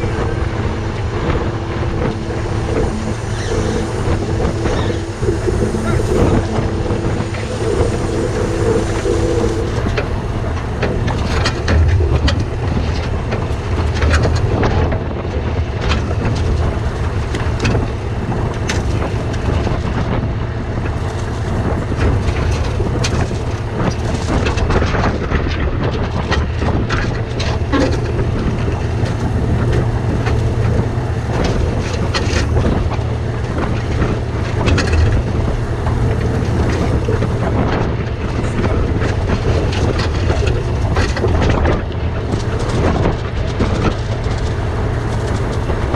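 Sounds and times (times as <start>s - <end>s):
humming tone: 0.0s - 15.0s, 27.2s - 45.9s
rattles and clunks: 0.0s - 45.9s
truck diesel engine running: 0.0s - 45.9s.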